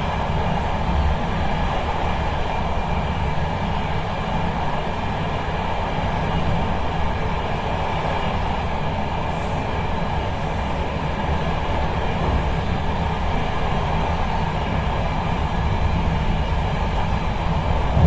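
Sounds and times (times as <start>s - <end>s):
train rumble from inside carriage: 0.0s - 18.0s.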